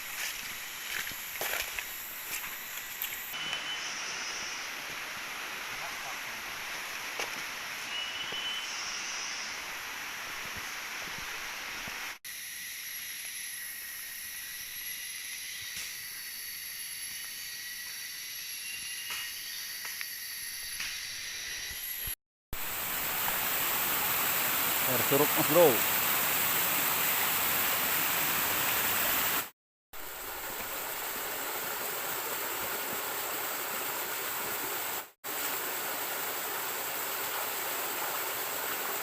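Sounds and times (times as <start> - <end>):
steady high hiss: 0.0 - 29.4
faint bird chirps: 3.4 - 4.7, 7.9 - 9.6.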